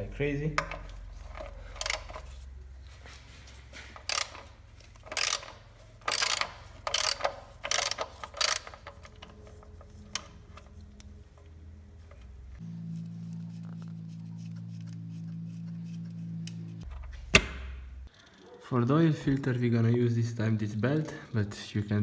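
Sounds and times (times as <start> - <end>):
wrench clicking: 0.6 - 2.4, 4.0 - 10.7.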